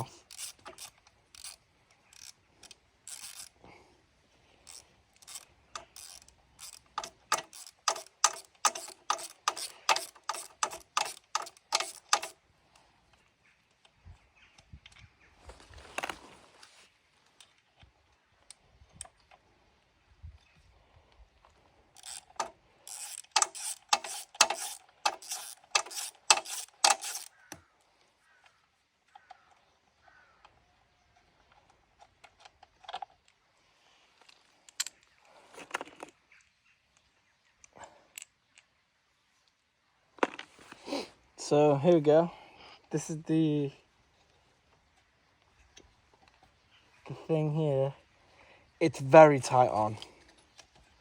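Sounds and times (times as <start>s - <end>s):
ratchet wrench clicking: 0.2s - 3.6s, 4.6s - 12.4s, 22.0s - 27.4s
metal tools clinking: 22.0s - 27.3s.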